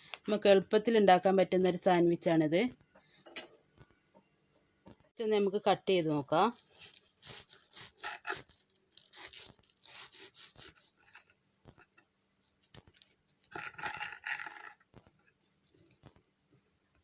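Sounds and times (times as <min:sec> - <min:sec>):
knife sawing through toasted bread: 0:07.2 - 0:11.0.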